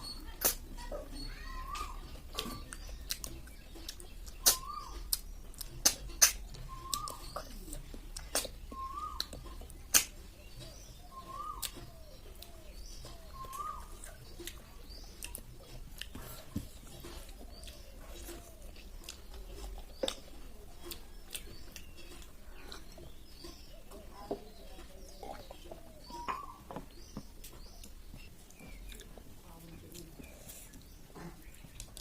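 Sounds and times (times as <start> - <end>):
clicks of eating snails: 0.3 - 0.9, 1.6 - 32.0
short chirp-like calls: 4.4 - 5.2, 6.2 - 7.5, 10.0 - 14.2.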